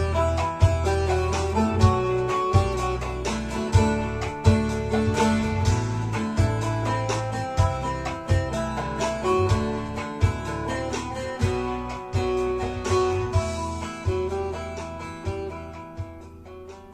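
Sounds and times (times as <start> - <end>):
deep bass notes: 0.0 - 16.7
long-necked lute melody: 0.0 - 16.9.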